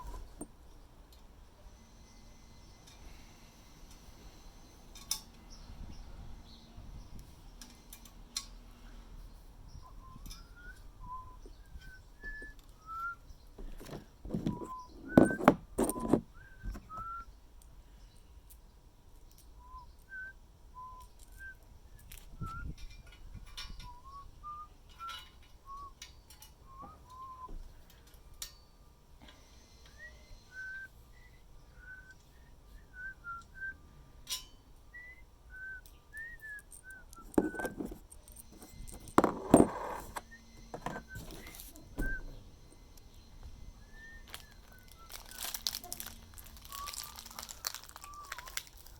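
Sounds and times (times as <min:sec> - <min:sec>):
person whistling a tune: 0:09.8 - 0:13.3, 0:14.5 - 0:17.3, 0:19.6 - 0:22.8, 0:23.8 - 0:26.0, 0:26.6 - 0:27.6, 0:29.9 - 0:34.0, 0:34.9 - 0:37.8, 0:40.3 - 0:42.4, 0:43.7 - 0:45.6, 0:46.5 - 0:48.9
knocks and clatter of parts: 0:13.6 - 0:17.2, 0:36.2 - 0:43.0.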